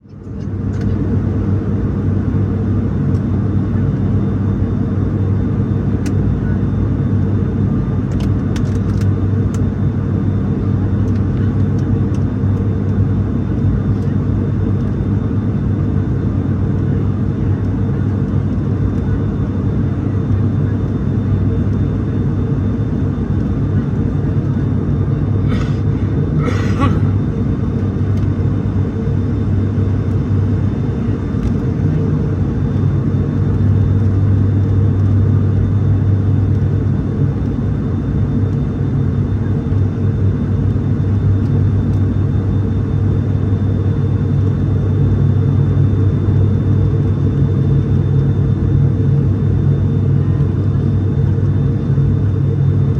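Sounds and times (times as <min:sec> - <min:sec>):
turboprop cabin drone: 0:00.0 - 0:52.9.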